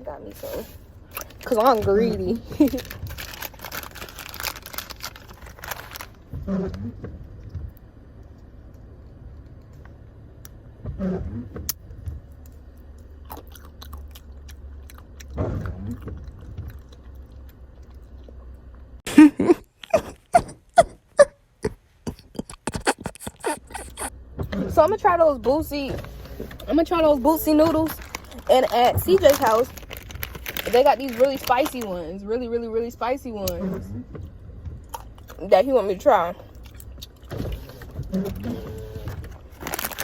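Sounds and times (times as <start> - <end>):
low steady hum: 0.0 - 40.0
person chewing and crunching food: 2.4 - 6.1, 12.5 - 20.9, 21.6 - 24.1, 27.8 - 31.9, 39.5 - 40.0.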